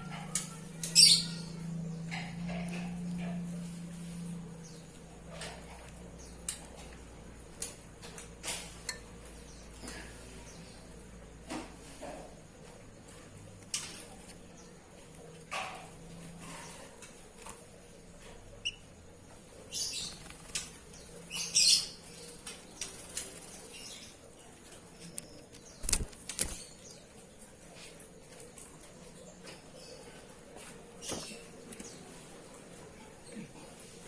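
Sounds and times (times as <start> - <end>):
bird fluttering wings: 19.9 - 21.2, 22.0 - 23.8, 25.5 - 26.8.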